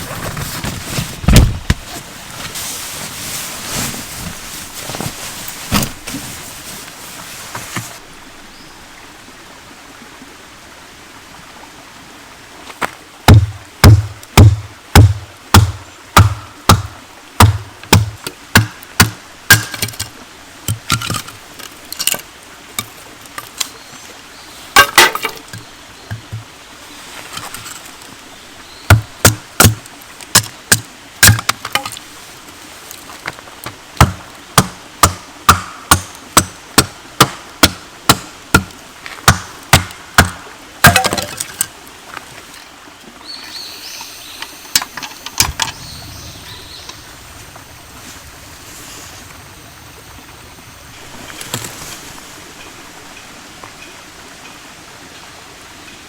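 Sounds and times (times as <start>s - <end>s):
soft hiss: 0.0s - 56.0s
firewood splitting knocks: 1.2s - 1.9s, 13.3s - 20.1s, 24.8s - 26.4s, 28.9s - 32.0s, 33.6s - 41.7s.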